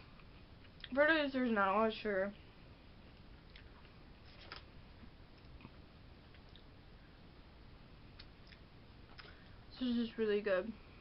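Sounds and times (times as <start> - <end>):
chewing popcorn: 8.2 - 9.5.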